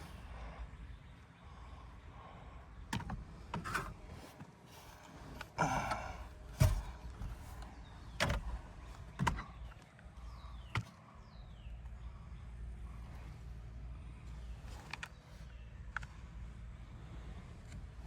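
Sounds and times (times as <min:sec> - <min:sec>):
handling knocks and clicks: 0:05.3 - 0:11.0.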